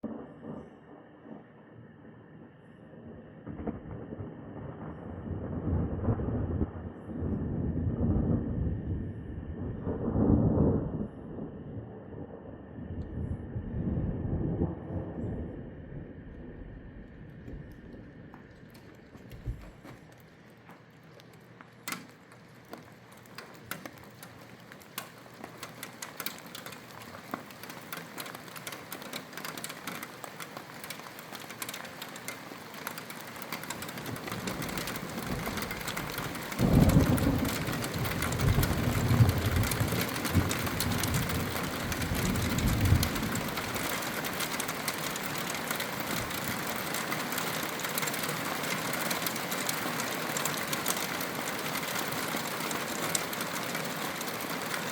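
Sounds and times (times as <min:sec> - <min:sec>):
thunder rumble: 0:00.0 - 0:19.8, 0:33.7 - 0:46.8
rain downpour: 0:00.0 - 0:54.9.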